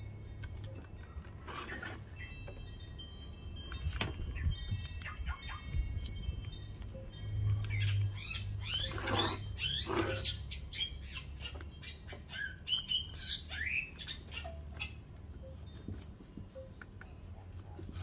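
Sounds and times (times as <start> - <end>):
small birds chirping and squawking: 3.8 - 18.0.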